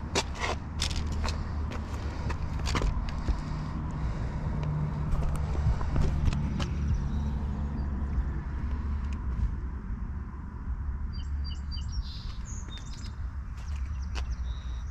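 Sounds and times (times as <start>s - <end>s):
wind and road rumble: 0.0s - 14.9s
small birds chirping: 11.1s - 14.9s.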